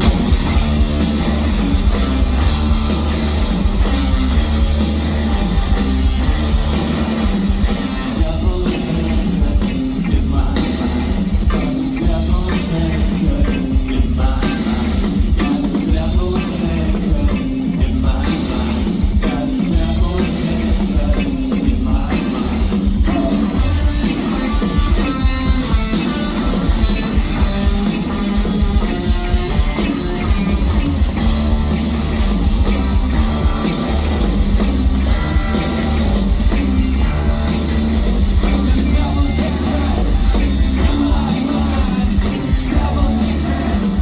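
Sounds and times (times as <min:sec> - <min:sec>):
live rock band playing: 0:00.0 - 0:44.0
person singing: 0:08.1 - 0:30.3, 0:35.1 - 0:44.0.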